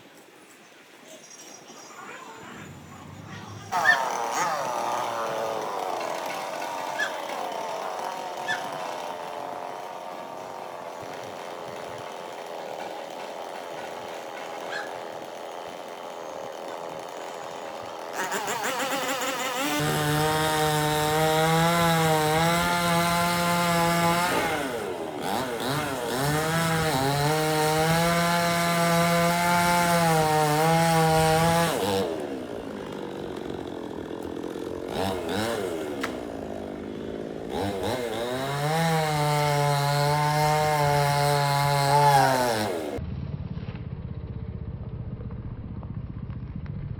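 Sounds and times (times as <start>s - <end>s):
chainsaw cutting wood: 3.7s - 43.0s
chainsaw idling: 3.7s - 43.0s.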